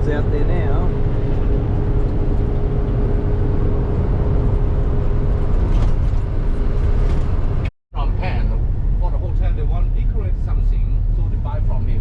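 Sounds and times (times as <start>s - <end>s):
constant hum: 0.0s - 12.0s
engine and road rumble: 0.0s - 12.0s.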